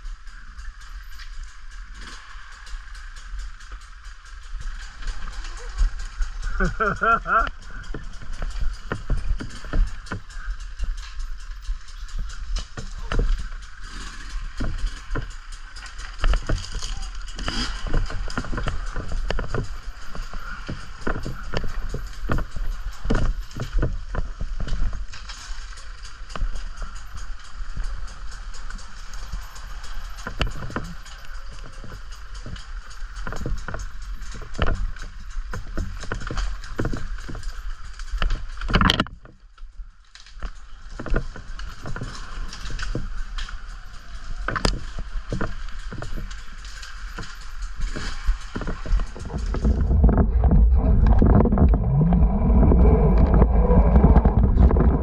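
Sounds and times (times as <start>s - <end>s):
bike knocking and rattling: 0.0s - 55.0s
wind and tyre rush: 41.1s - 55.0s.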